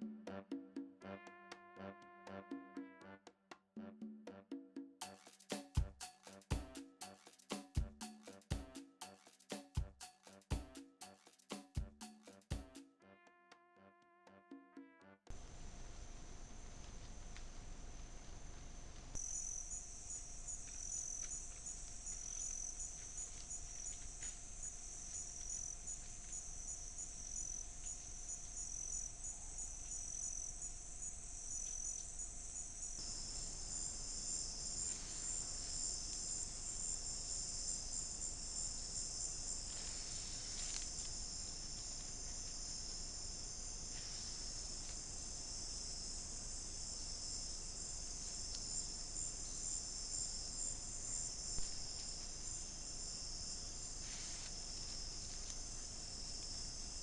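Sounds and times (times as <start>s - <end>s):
insects trilling: 19.2s - 57.0s.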